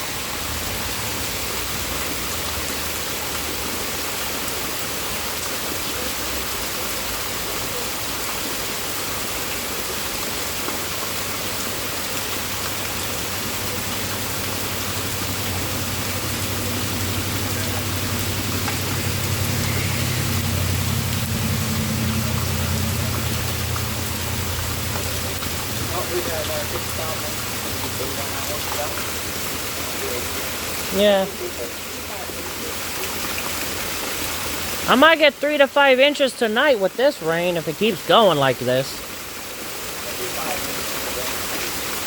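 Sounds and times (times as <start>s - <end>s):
heavy rain falling: 0.0s - 42.0s
low rumble: 13.9s - 28.2s.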